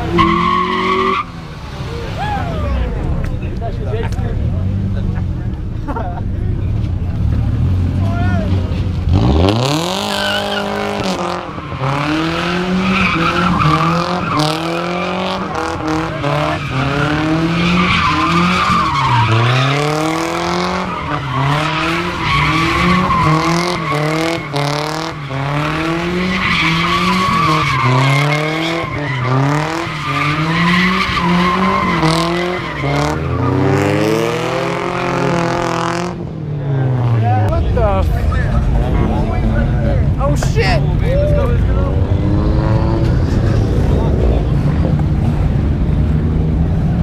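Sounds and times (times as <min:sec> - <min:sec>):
car engine revving hard: 0:09.0 - 0:37.2, 0:41.7 - 0:47.0.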